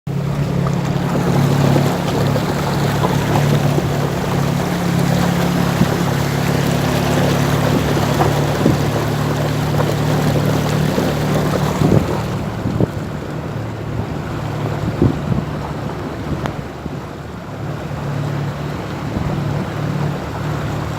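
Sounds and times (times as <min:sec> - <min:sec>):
heavy rain: 0:00.2 - 0:16.8.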